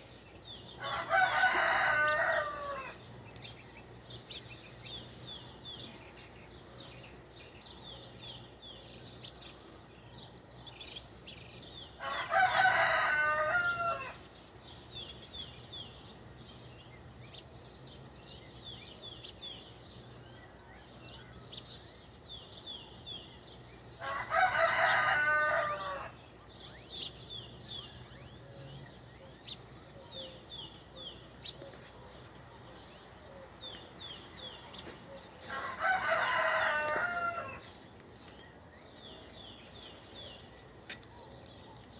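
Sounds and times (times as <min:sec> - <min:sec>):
rooster crowing: 0:00.8 - 0:03.0, 0:12.0 - 0:14.2, 0:24.0 - 0:26.2, 0:35.2 - 0:37.7
small birds chirping: 0:14.0 - 0:41.9.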